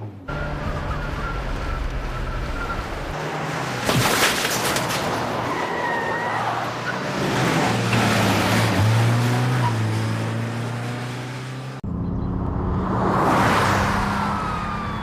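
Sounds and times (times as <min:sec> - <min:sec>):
car engine revving: 0:06.4 - 0:15.0.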